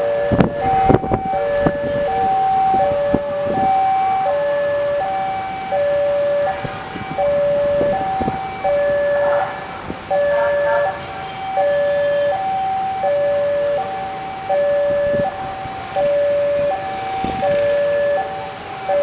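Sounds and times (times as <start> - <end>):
two-tone crossing alarm chime: 0.0 - 19.0.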